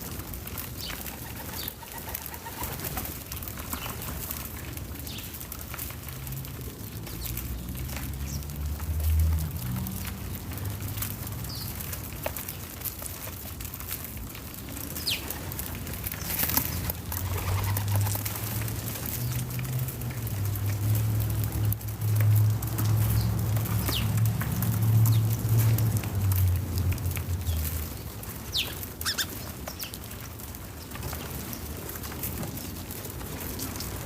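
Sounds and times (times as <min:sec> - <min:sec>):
low outdoor rumble: 0:00.0 - 0:34.0
bird chirps: 0:28.5 - 0:29.9.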